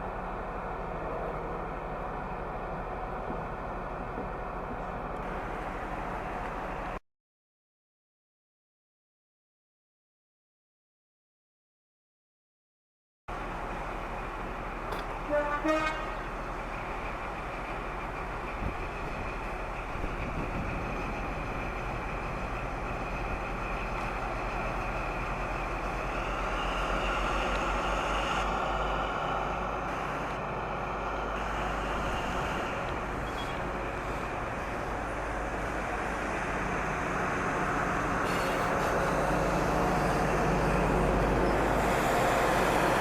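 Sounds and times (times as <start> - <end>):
train running noise: 0.0 - 7.0, 13.3 - 43.0
two-tone train horn: 15.2 - 16.4.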